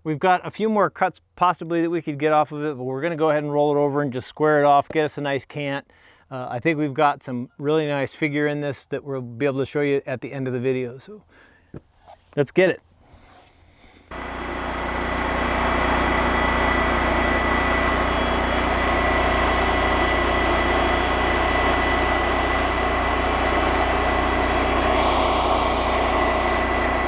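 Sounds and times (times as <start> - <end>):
bandsaw sawmill engine running: 14.1 - 27.0.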